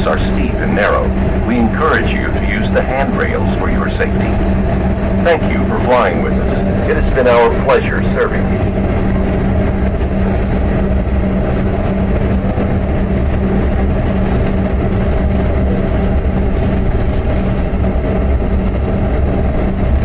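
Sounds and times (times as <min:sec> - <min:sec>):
faint high whine: 0:00.0 - 0:12.1
aircraft cabin engine rumble: 0:00.0 - 0:20.0
cabin air system hum: 0:00.0 - 0:20.0.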